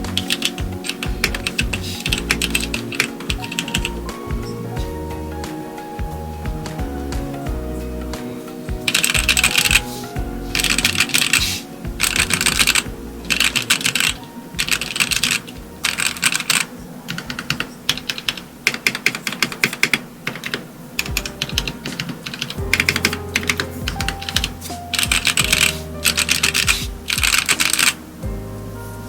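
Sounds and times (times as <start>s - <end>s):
mechanical keyboard clacks: 13.4s - 28.0s.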